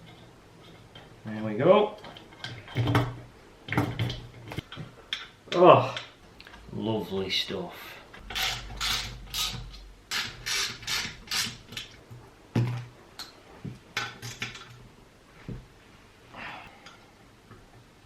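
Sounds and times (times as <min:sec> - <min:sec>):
ratchet wrench strokes: 0:08.2 - 0:11.6.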